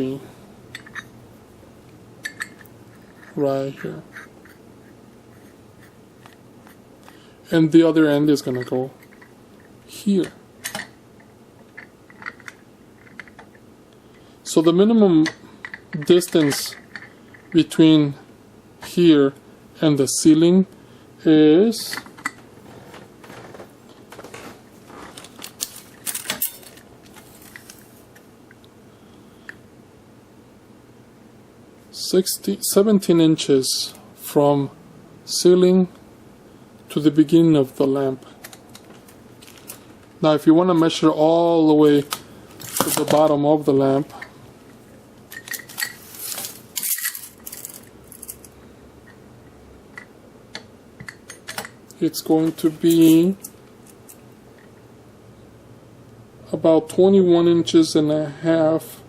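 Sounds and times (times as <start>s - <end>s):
metal hardware clinking: 0.7s - 1.1s, 2.2s - 4.6s, 8.4s - 9.3s, 25.6s - 26.8s, 45.3s - 48.5s
scraping rustles: 22.6s - 28.1s, 45.5s - 48.4s
metallic clicks and clinks: 46.8s - 48.5s.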